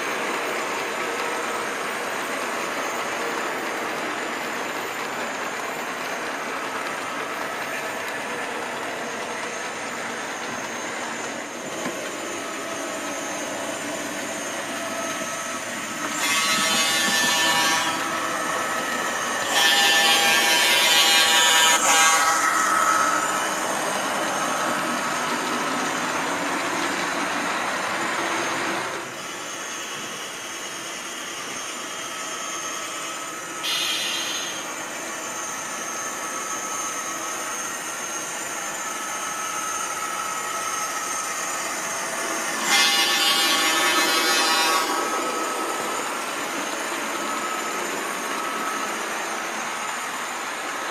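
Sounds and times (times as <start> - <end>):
model train diesel engine sound: 0.0 - 50.9
locomotive horn blasts: 33.6 - 34.6.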